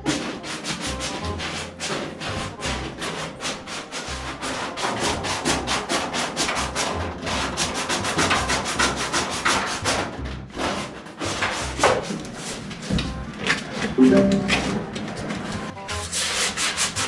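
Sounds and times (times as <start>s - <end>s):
hand sanding sheet metal: 0.1s - 6.6s, 16.1s - 17.0s.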